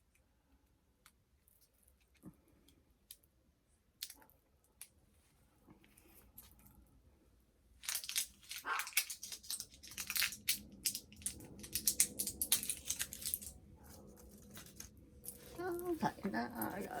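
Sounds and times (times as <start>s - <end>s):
plastic packaging crinkling: 7.8s - 13.6s.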